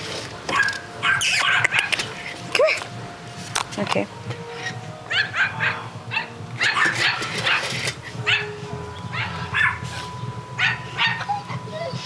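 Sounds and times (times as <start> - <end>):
dog barking: 0.5 - 2.0, 5.1 - 7.7, 8.3 - 8.5, 9.2 - 9.8, 10.6 - 11.4.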